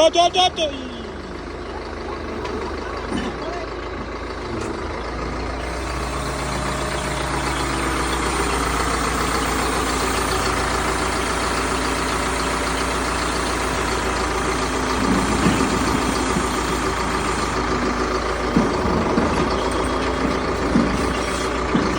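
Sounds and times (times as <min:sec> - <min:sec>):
heavy vehicle engine idling: 0:00.0 - 0:21.9.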